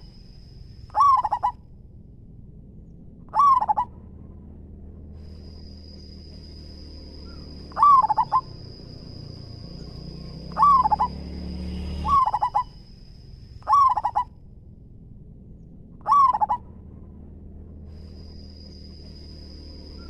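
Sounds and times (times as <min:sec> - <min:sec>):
dove cooing: 0:00.9 - 0:01.6, 0:03.3 - 0:04.0, 0:07.2 - 0:11.2, 0:12.0 - 0:12.8, 0:13.6 - 0:14.3, 0:16.0 - 0:16.6.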